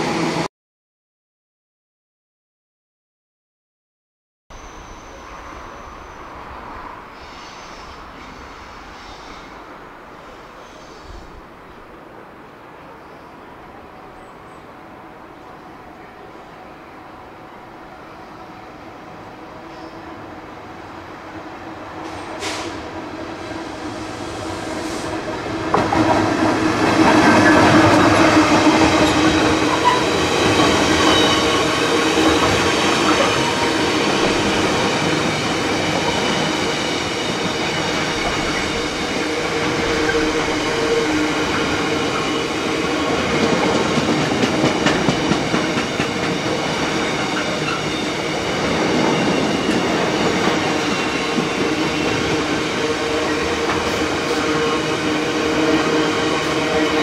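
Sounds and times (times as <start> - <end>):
diesel locomotive engine: 13.6 - 57.0.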